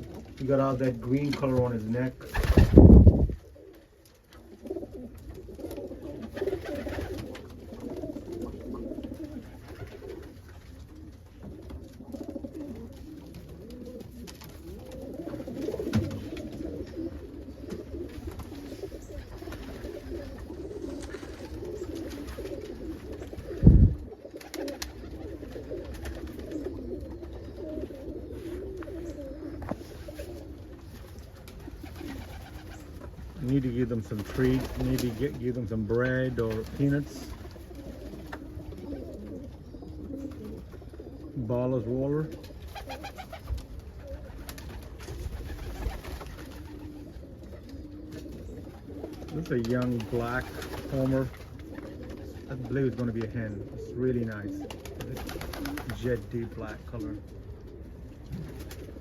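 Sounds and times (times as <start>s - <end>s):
pigeons cooing: 0.0s - 59.0s.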